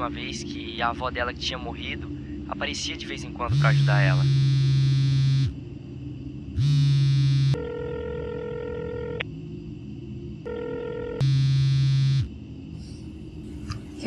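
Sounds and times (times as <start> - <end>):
phone buzzing vibration: 3.5 - 5.6, 6.6 - 9.2, 10.4 - 12.3
electronic phone ring tone: 7.4 - 9.2, 10.5 - 12.3.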